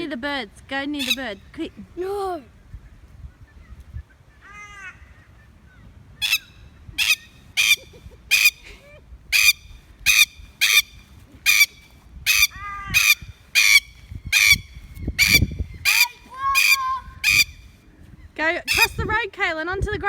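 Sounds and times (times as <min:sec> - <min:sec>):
plover alarm calls: 0:01.0 - 0:01.6, 0:06.2 - 0:08.7, 0:09.3 - 0:17.7, 0:18.7 - 0:19.0.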